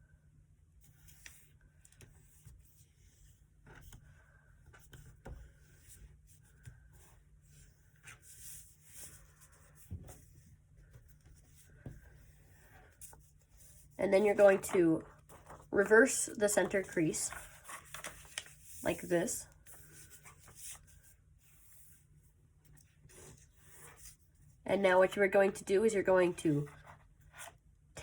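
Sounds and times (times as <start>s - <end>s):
paper rustling being folded: 11.6s - 22.0s.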